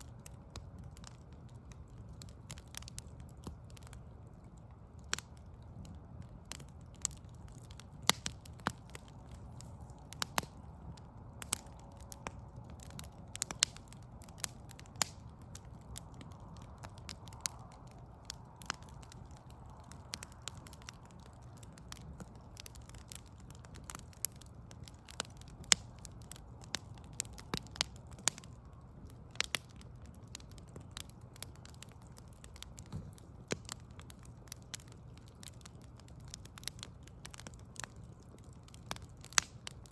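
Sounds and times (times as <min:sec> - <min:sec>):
burning logs crackling: 0:00.0 - 0:39.9
low steady rumble: 0:00.0 - 0:39.9.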